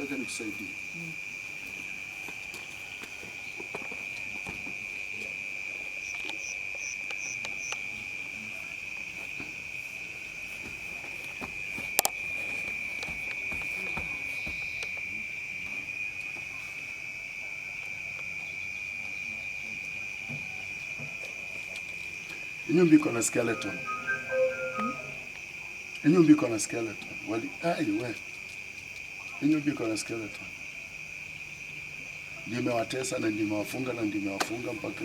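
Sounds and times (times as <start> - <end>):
crickets trilling: 0.0 - 35.0
short higher chirps: 23.3 - 25.3.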